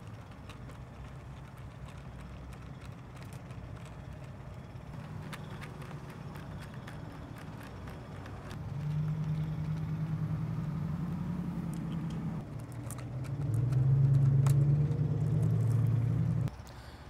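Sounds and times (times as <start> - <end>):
low motor hum: 0.0 - 16.6.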